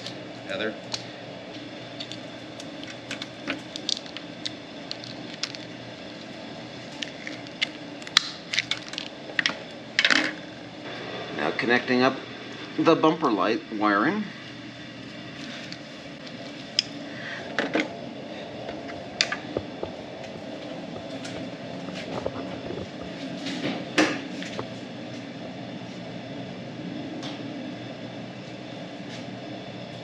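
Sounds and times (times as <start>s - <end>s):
steady hum: 0.0s - 30.0s
wiring connectors clicking: 2.0s - 6.3s.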